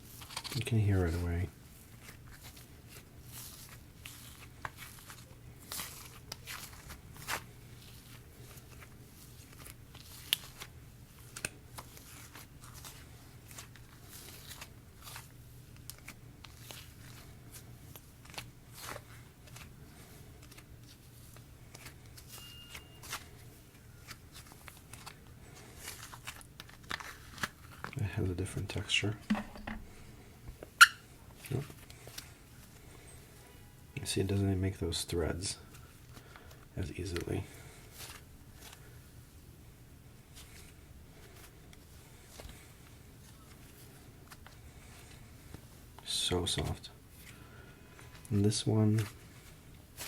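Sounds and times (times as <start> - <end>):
hands squishing sticky slime: 0.0 - 28.0.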